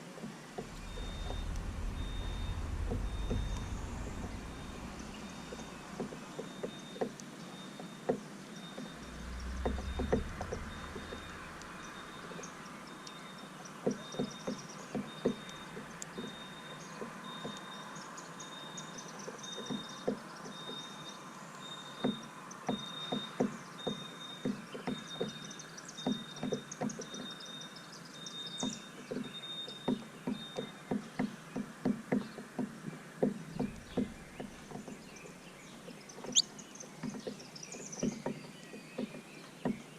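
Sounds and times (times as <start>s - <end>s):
low rumble: 0.5s - 6.9s, 8.8s - 13.3s, 33.6s - 35.8s
faint bird chirps: 0.5s - 31.4s, 33.4s - 39.9s.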